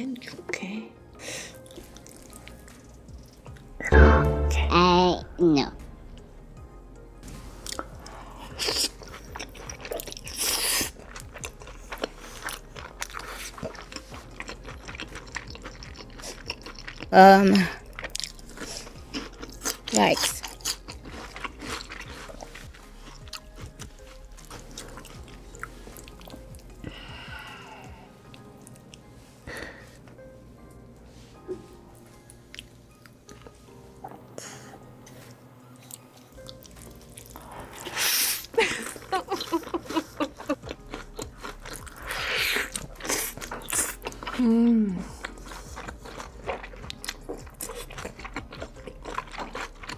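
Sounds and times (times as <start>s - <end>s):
faint background music: 0.0s - 49.9s
person chewing crunchy food: 1.5s - 3.7s, 7.6s - 29.1s, 35.1s - 49.9s.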